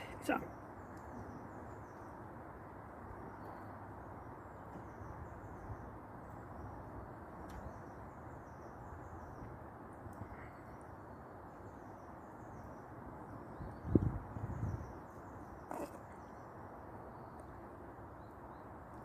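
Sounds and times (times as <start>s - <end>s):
faint bird calls: 15.4s - 16.4s.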